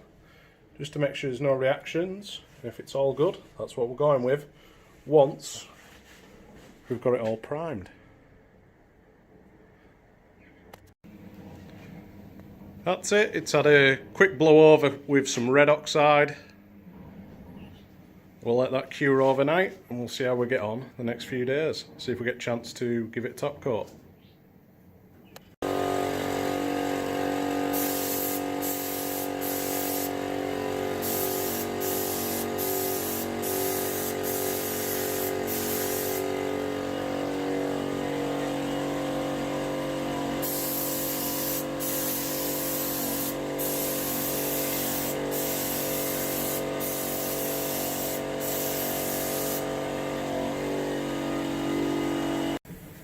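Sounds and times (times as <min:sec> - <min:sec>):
generator engine droning: 0:25.6 - 0:31.1, 0:31.7 - 0:40.4
spray gun hissing bursts: 0:25.6 - 0:51.8.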